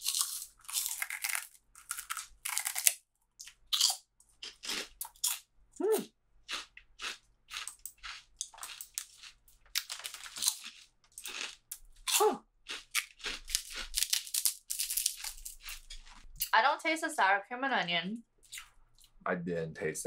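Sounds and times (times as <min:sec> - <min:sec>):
crunchy food chewing: 0:00.0 - 0:16.6, 0:18.4 - 0:19.2
person humming: 0:05.8 - 0:06.0.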